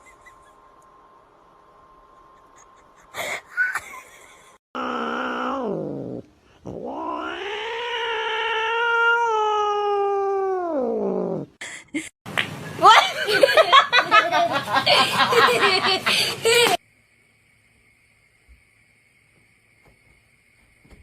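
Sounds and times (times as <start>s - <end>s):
cat yowling: 4.8s - 11.0s.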